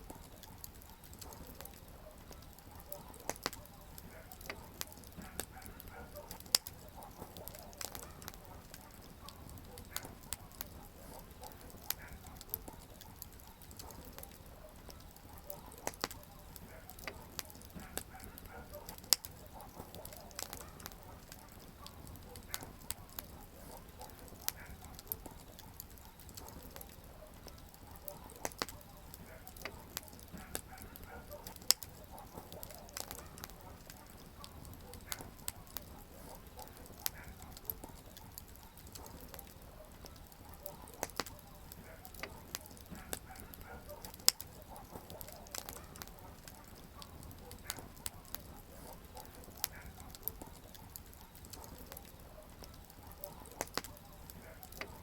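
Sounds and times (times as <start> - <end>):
campfire crackling: 0.0 - 55.0
flame hiss: 16.8 - 52.1.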